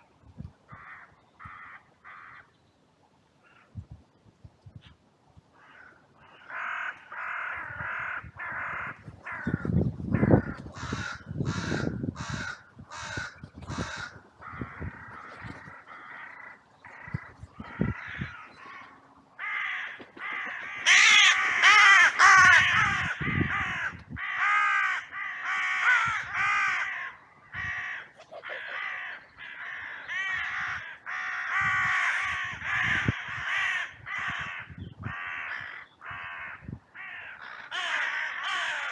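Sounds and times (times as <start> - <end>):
crows cawing: 0.7 - 2.5, 5.6 - 38.9.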